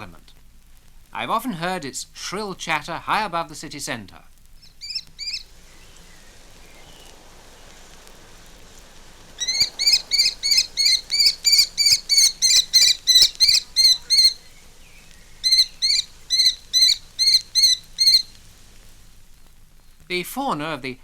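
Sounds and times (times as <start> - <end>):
kestrel shrill chatter: 4.6 - 18.6.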